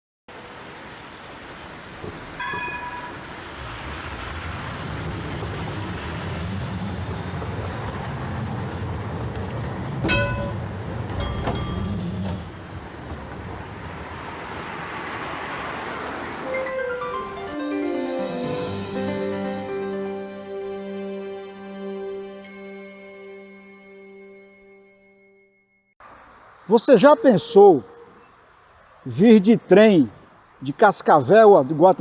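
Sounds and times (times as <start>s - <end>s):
tram running on rails: 0.4s - 18.8s
sharp metallic clanks: 10.0s - 12.7s.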